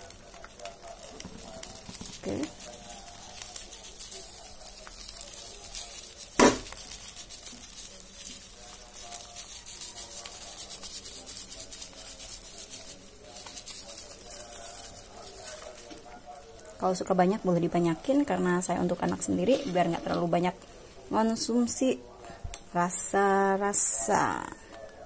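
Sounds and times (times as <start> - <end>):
batter sizzling in a pan: 0.0 - 21.8
sharp knock: 6.4 - 6.7.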